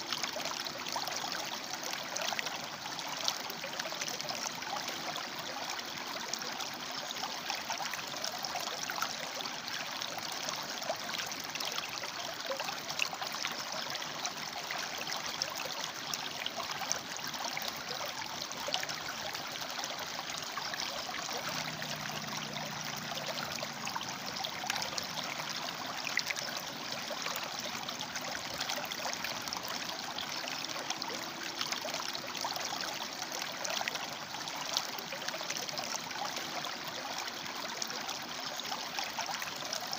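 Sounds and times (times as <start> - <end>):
river water rushing over rocks: 18.9 - 35.1.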